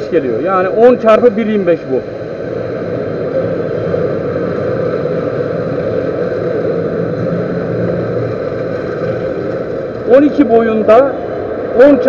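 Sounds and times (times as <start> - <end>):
metal lathe humming: 1.9 - 11.5.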